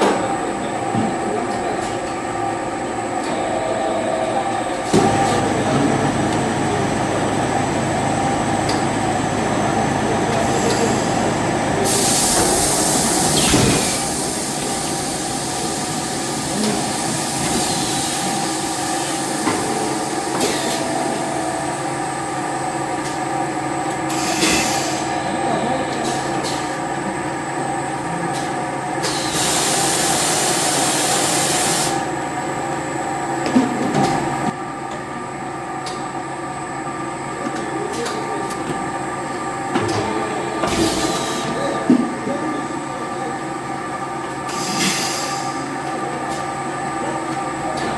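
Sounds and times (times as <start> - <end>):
factory machinery humming: 0.0 - 47.9
air hissing: 4.9 - 22.1, 24.1 - 25.2, 29.0 - 32.0, 44.5 - 45.7.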